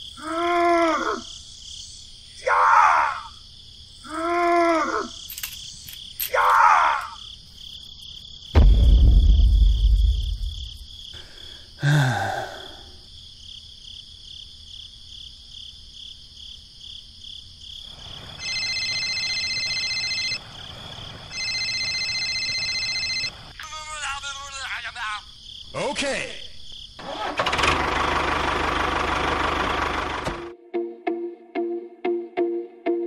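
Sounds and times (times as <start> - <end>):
low rumbling crash: 8.6 - 11.0
mobile phone ringtone: 18.4 - 20.4, 21.3 - 23.8.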